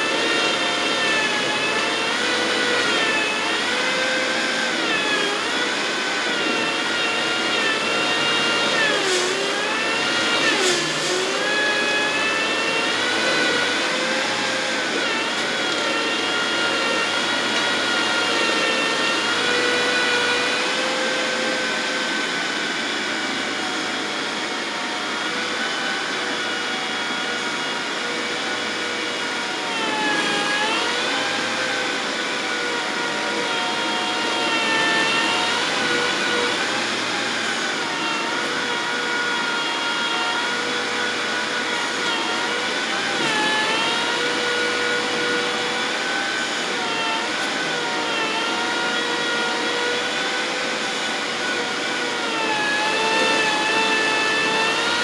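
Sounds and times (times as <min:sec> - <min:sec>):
heavy equipment engine whining: 0:00.0 - 0:55.0.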